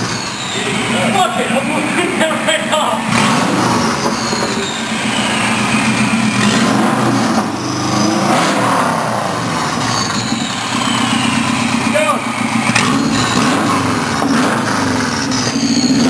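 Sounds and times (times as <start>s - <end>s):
car engine running loud without exhaust: 0.0s - 16.0s
high turbo whistle sliding down: 3.9s - 8.6s.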